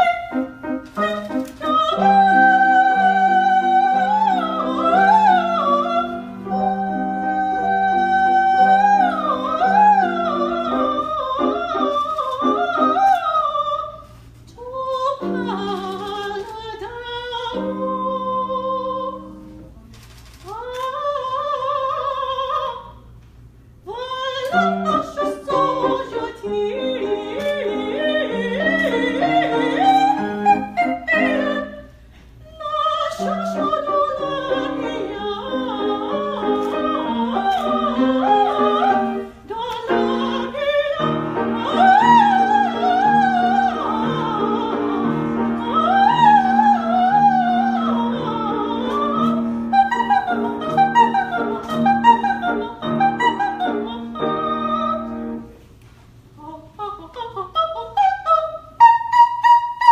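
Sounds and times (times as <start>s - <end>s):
operatic solo singing: 23.9s - 55.4s.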